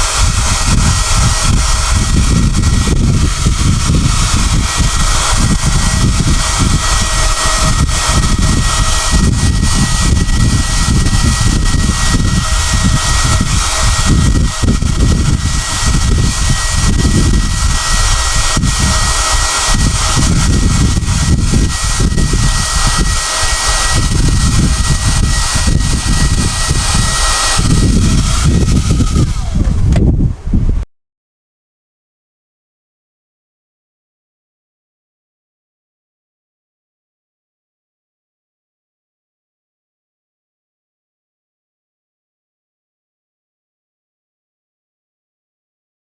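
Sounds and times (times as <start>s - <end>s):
thin high whine: 0.0s - 30.0s
hair dryer blowing: 0.0s - 30.1s.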